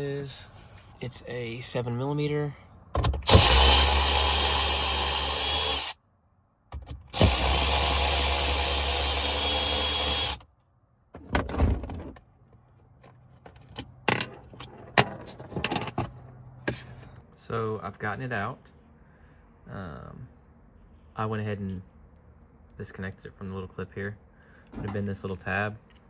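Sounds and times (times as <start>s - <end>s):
cordless drill running: 3.3s - 6.0s, 7.2s - 10.4s.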